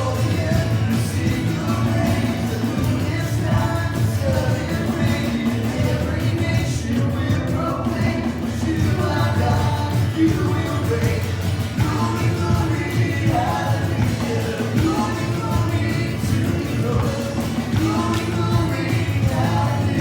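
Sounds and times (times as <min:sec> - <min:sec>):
person singing: 0:00.0 - 0:20.0
worship band music: 0:00.0 - 0:20.0.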